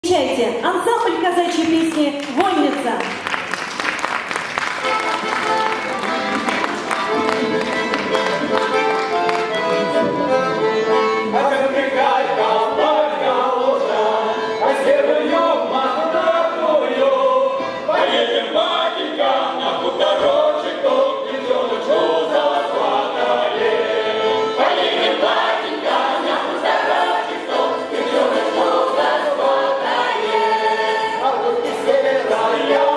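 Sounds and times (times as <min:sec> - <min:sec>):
instrumental chords: 0:04.7 - 0:14.8
group singing in chorus: 0:11.2 - 0:32.9.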